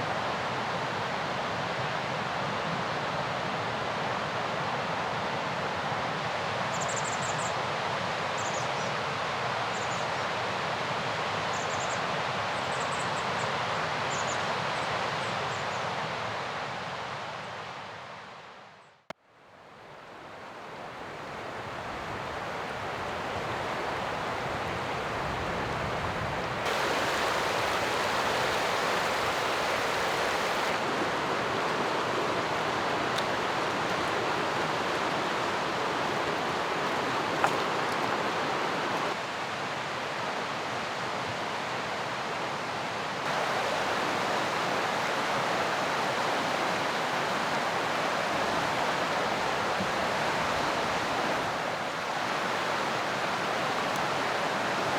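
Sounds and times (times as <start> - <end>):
mountain river rushing: 20.2 - 54.9.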